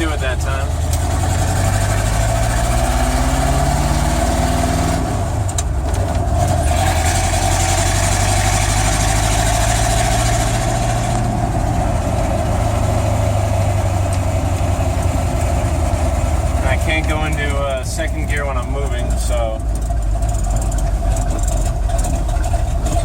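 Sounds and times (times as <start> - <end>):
engine clicks: 0.0 - 2.6, 5.3 - 7.8, 14.0 - 23.0
pickup truck engine idling: 0.0 - 23.0.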